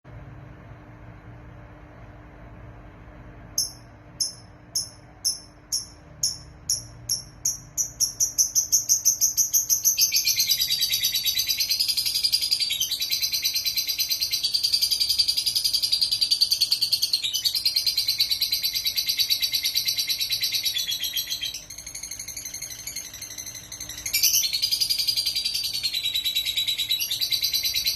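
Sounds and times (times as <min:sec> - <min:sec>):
lovebird chirping and chattering: 0:03.5 - 0:27.9.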